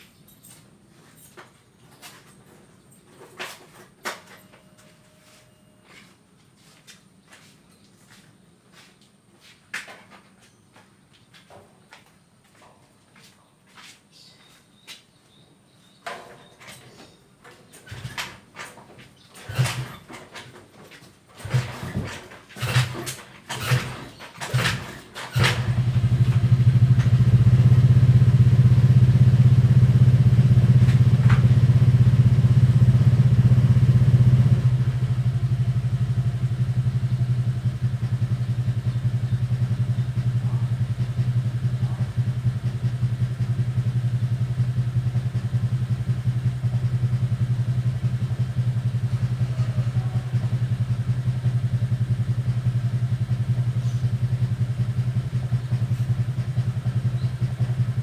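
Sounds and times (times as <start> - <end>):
small engine humming: 21.4 - 58.0.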